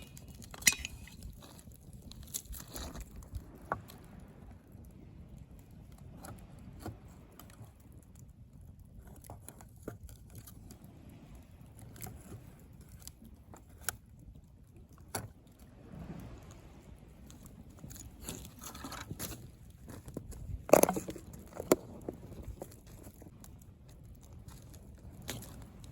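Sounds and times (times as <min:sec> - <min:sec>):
bonfire crackling and popping: 0:00.0 - 0:25.9.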